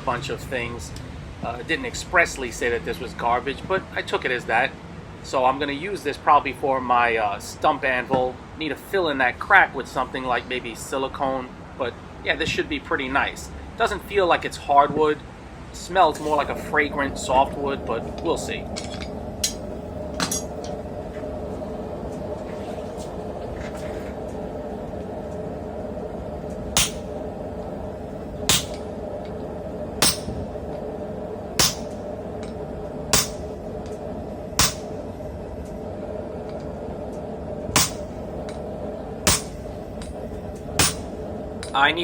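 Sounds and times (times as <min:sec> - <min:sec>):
steady hum: 0:15.4 - 0:42.0
hammer blows on metal: 0:26.8 - 0:27.2, 0:28.5 - 0:28.9, 0:30.0 - 0:30.5, 0:31.6 - 0:32.0, 0:33.1 - 0:33.5, 0:34.6 - 0:34.9, 0:37.8 - 0:38.2, 0:39.3 - 0:40.1, 0:40.8 - 0:41.8.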